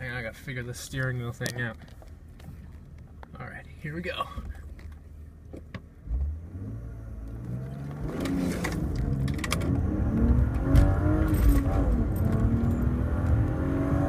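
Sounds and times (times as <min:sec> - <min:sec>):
car engine accelerating: 0:06.0 - 0:14.0.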